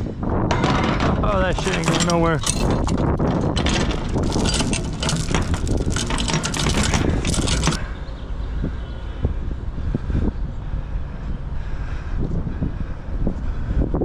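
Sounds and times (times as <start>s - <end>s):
steady rumble: 0.0s - 14.0s
wind buffeting microphone: 0.0s - 14.0s
clicks and rattles: 0.5s - 7.9s.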